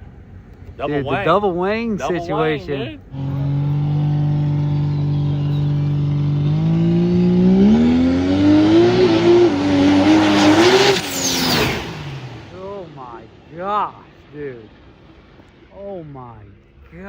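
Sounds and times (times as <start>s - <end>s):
race car engine accelerating: 3.1s - 14.2s.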